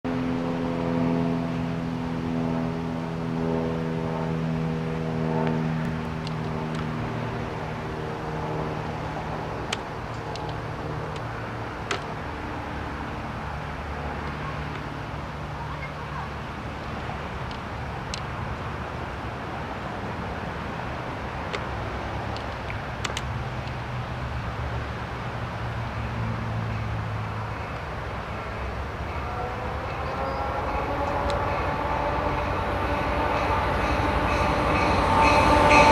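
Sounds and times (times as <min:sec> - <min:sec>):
rising engine note: 0:00.1 - 0:09.7, 0:27.4 - 0:35.9
background traffic rumble: 0:00.1 - 0:35.9
distant diesel locomotive: 0:00.1 - 0:35.9.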